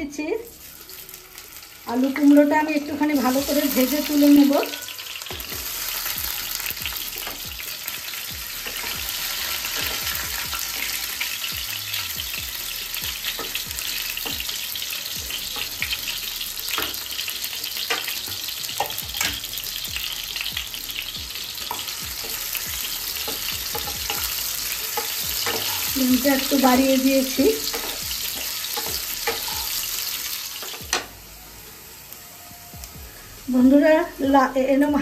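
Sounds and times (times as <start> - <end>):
potatoes sizzling in oil: 0.1 - 35.0
spatula scraping a pan: 3.2 - 11.3, 20.5 - 30.8.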